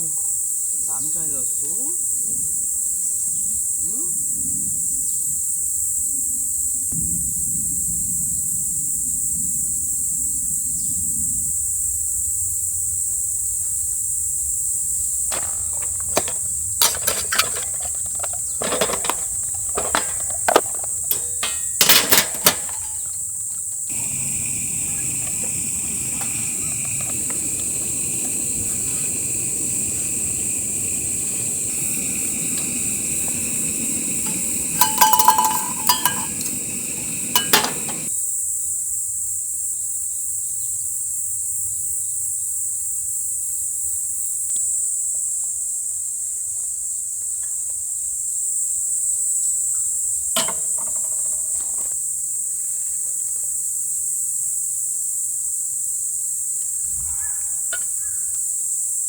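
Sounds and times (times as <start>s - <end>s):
insects chirring: 0.0s - 38.1s, 48.3s - 59.0s
tableware clinking: 16.8s - 23.2s, 23.9s - 38.1s, 50.4s - 51.5s.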